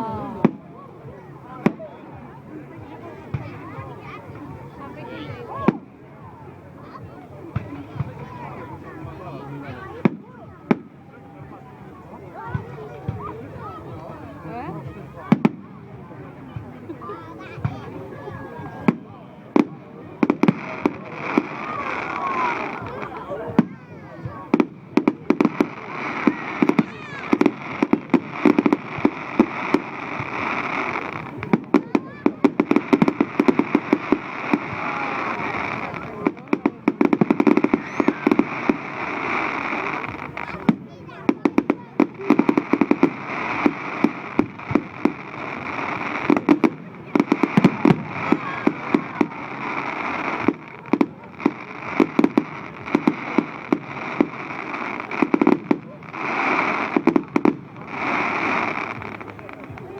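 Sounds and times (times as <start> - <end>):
fireworks bangs: 17.4 - 59.9.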